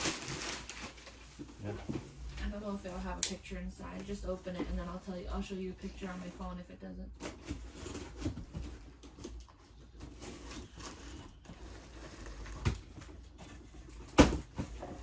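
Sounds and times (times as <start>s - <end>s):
wrapping paper rustling and tearing: 0.0s - 1.6s.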